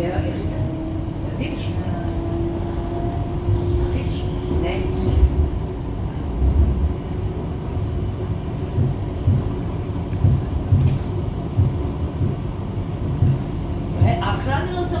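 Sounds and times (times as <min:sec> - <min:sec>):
tram running rumble: 0:00.0 - 0:15.0
low thuds: 0:06.3 - 0:14.5.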